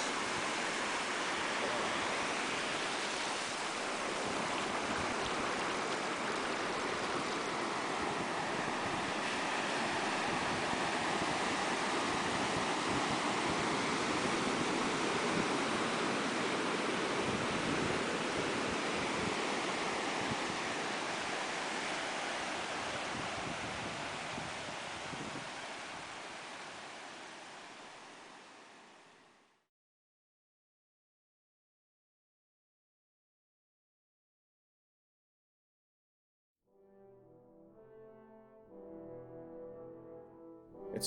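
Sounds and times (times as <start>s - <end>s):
ocean waves breaking on beach: 0.0s - 29.2s.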